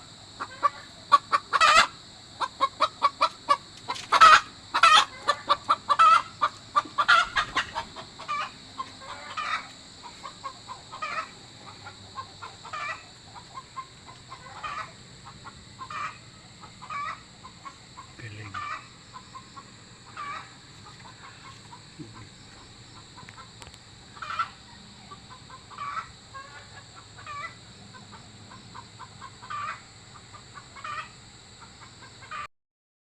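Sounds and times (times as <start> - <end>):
chicken clucking: 0.0 - 32.5.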